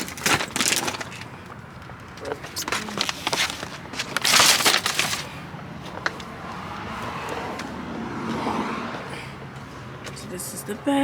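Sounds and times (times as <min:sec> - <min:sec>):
objects clicking and knocking: 0:00.0 - 0:05.3
loud crackling rustle: 0:00.0 - 0:05.4.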